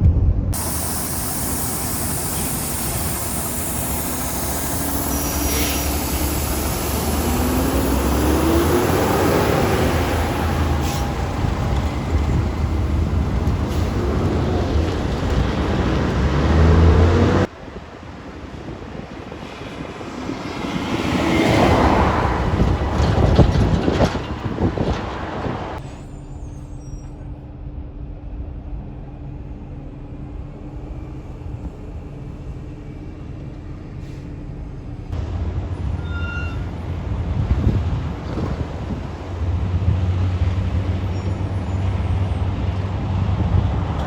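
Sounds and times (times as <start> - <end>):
low engine hum: 0.0 - 36.0
heavy truck driving past: 0.6 - 27.6.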